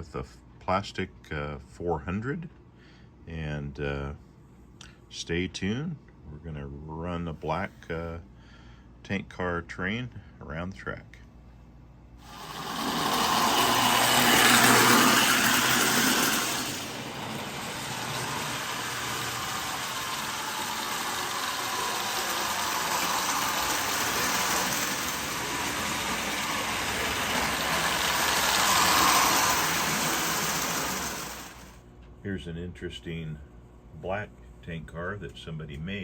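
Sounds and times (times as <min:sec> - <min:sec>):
toy train motor whirring: 0:12.2 - 0:31.8
toy train rattling on rails: 0:12.2 - 0:31.8.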